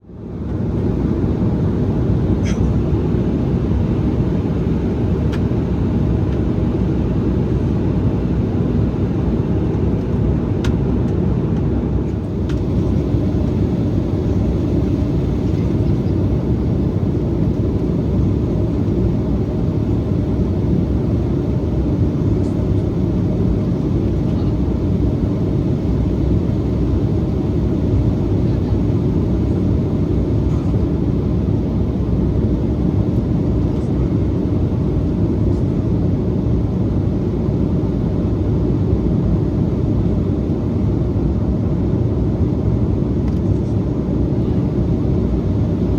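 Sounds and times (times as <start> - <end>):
airliner cabin drone: 0.0 - 45.9.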